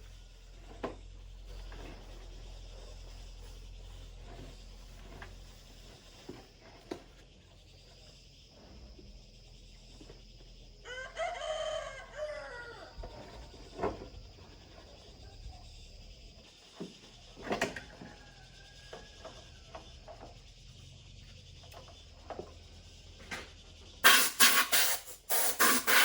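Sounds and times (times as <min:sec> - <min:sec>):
rooster crowing: 0:10.8 - 0:13.8, 0:17.7 - 0:20.0.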